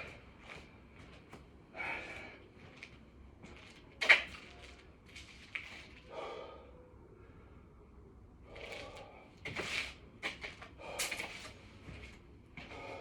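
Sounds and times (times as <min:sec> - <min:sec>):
man breathing hard: 0:01.7 - 0:02.5, 0:06.0 - 0:09.5, 0:10.7 - 0:11.6, 0:12.6 - 0:13.0.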